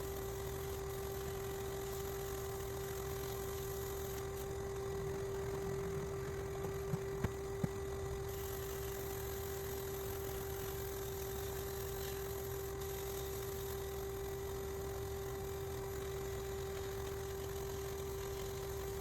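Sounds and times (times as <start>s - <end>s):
electric motor humming: 0.0s - 15.0s.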